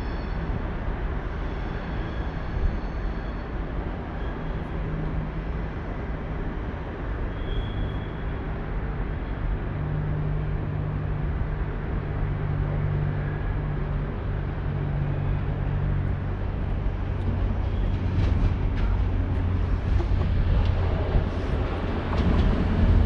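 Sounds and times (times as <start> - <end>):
low train rumble: 0.0 - 23.0
train humming: 9.1 - 23.0.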